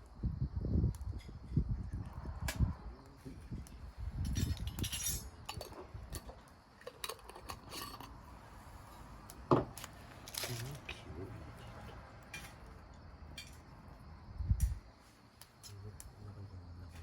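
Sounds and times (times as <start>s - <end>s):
metal camp gear clinking: 4.2s - 8.2s, 9.8s - 13.7s.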